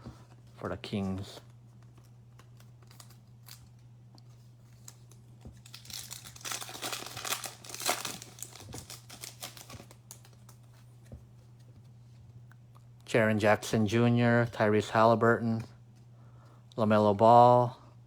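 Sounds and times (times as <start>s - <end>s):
steady low hum: 0.0s - 18.0s
foil wrapper crinkling and tearing: 1.9s - 3.8s, 4.6s - 10.6s.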